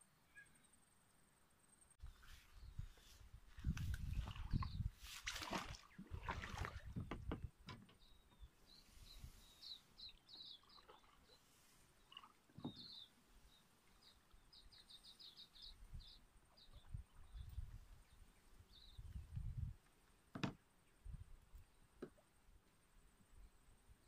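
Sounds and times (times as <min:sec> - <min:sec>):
small bird chirping faintly: 0:00.0 - 0:05.0, 0:07.9 - 0:19.7.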